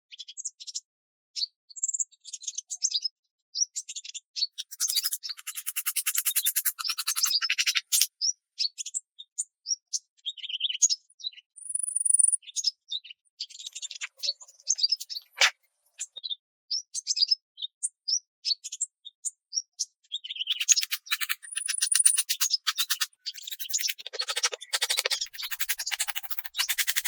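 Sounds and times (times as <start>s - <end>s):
small birds chirping: 3.8s - 9.3s, 10.2s - 17.3s, 18.6s - 27.0s.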